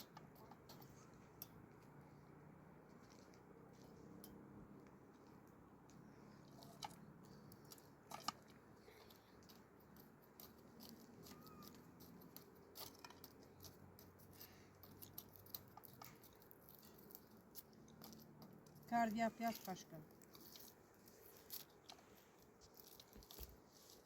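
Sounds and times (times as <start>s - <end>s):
small clicks and taps: 2.9s - 18.9s.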